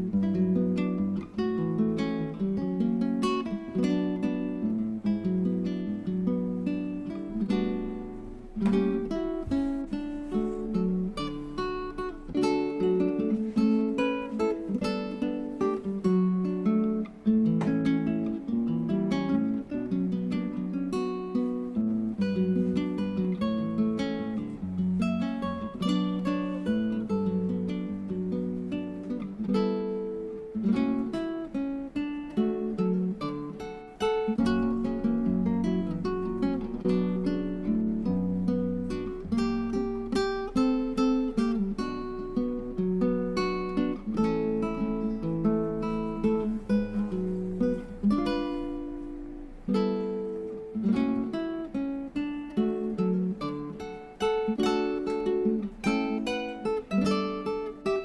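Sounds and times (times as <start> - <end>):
acoustic guitar melody: 0.0 - 58.0.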